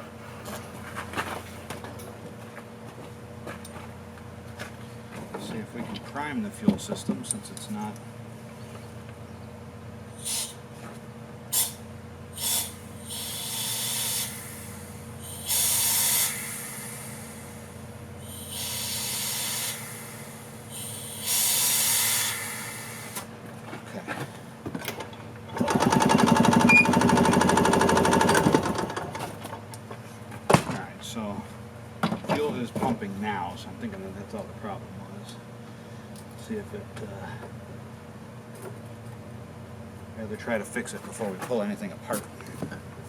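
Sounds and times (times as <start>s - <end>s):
engine cranking without starting: 25.5s - 29.4s.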